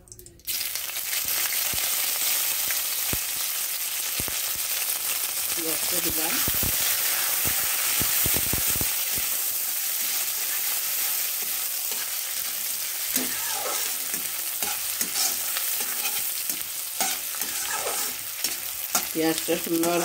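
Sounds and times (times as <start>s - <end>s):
onion sizzling in hot oil: 0.5s - 20.0s
metal spatula scraping pan: 9.9s - 20.0s.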